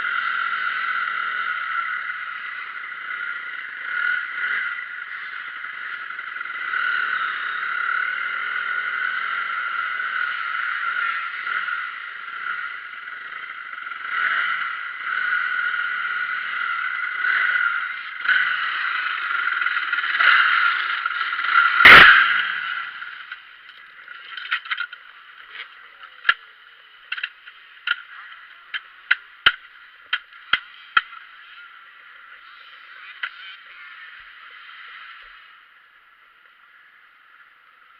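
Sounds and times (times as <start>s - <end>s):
motocross bike engine surging: 0.0s - 37.9s
sharp clicks and ticks: 18.1s - 31.3s.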